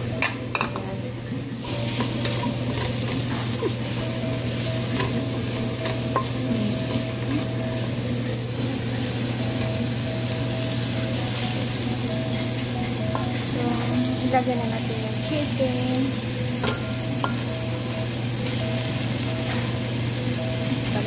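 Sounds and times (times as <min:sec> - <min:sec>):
vegetables sizzling in oil: 0:00.0 - 0:21.0
spatula scraping and tapping pot: 0:01.6 - 0:07.5.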